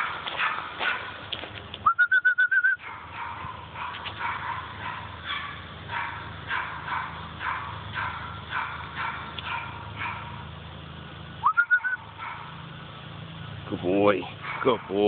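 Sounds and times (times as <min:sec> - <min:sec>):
bird chirping: 0:11.4 - 0:13.7.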